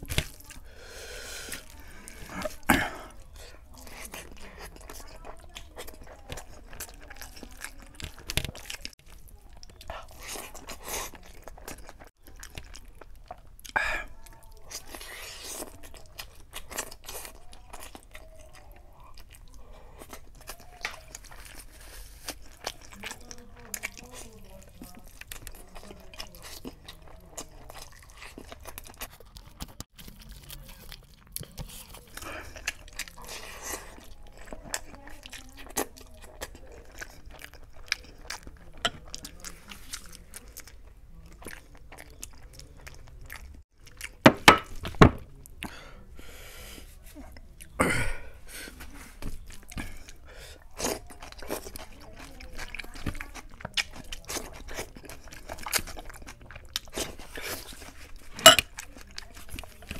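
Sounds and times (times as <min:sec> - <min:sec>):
wet chewing and lip-smacking: 0:00.0 - 0:45.8, 0:48.6 - 0:59.9.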